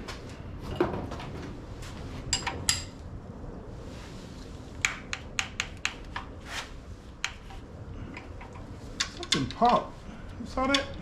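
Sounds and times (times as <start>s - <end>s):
metal hand tools clinking: 10.6s - 11.0s.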